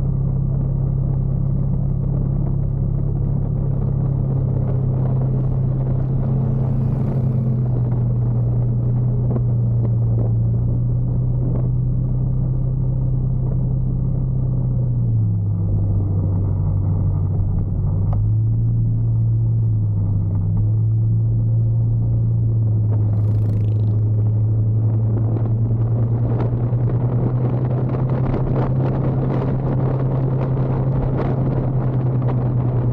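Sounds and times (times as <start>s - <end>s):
motorcycle engine running: 0.0s - 32.9s.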